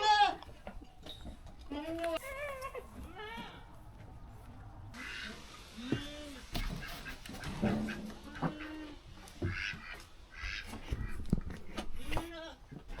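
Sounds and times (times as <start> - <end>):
ducks quacking: 4.9 - 11.3.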